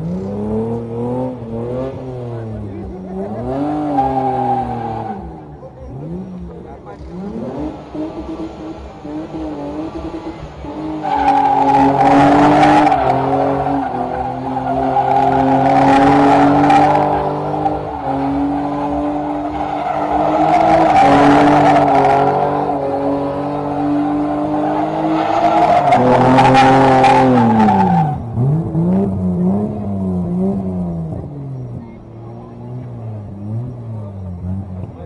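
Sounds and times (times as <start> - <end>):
car engine revving: 0.0 - 35.0
tyres squealing: 11.0 - 28.2.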